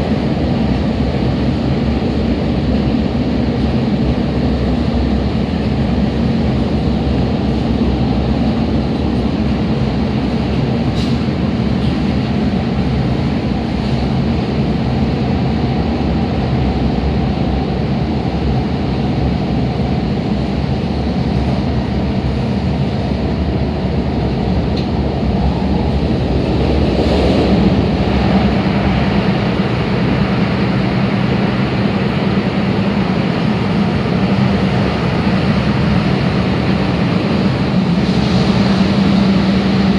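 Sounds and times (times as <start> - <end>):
constant hum: 0.0 - 39.9
wheel-on-rail rumble: 0.0 - 39.9.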